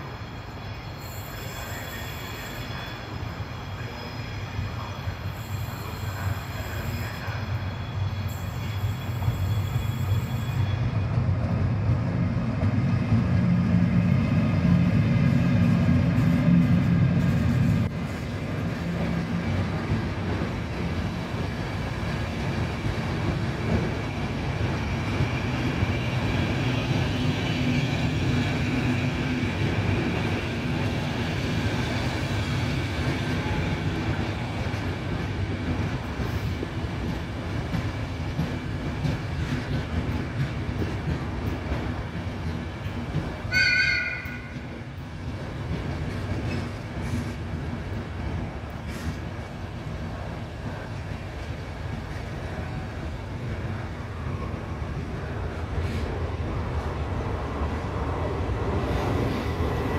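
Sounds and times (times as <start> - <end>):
faint high squeal: 0.0 - 11.1
train wheels rumbling on rails: 0.0 - 59.9
loud high-pitched squeal: 0.3 - 11.0.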